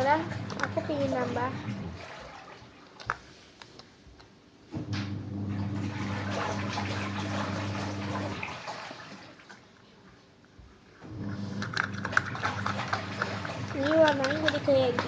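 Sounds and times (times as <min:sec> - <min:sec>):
water rushing: 0:00.0 - 0:02.8, 0:05.5 - 0:09.2, 0:11.2 - 0:15.0.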